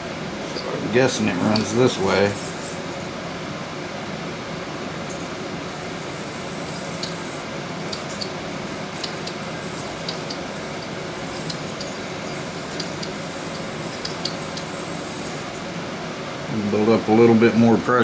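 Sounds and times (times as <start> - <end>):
sizzling water ticks and spits: 0.4 - 2.9, 5.0 - 15.6
high steam hiss: 5.2 - 15.6.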